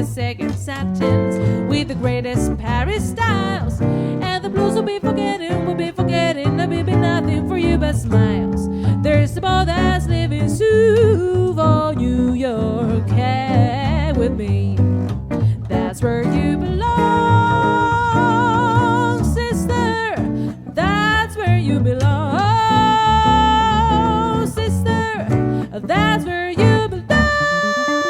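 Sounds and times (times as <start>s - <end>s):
woman singing with vibrato: 0.0s - 15.0s, 15.6s - 28.0s
guitar: 0.0s - 28.0s
plucked double bass: 0.0s - 28.0s.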